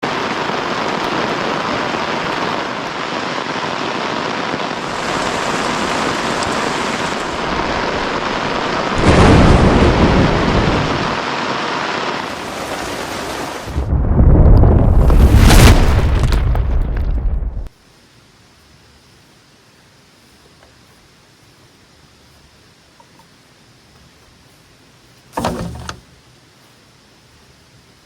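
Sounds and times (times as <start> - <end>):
heavy rain: 0.0 - 20.3
thunder rumble: 4.6 - 11.4, 12.2 - 17.7.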